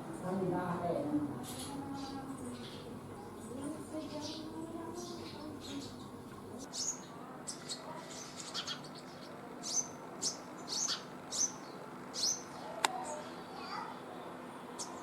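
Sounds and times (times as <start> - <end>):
small birds chirping: 0.2 - 15.0.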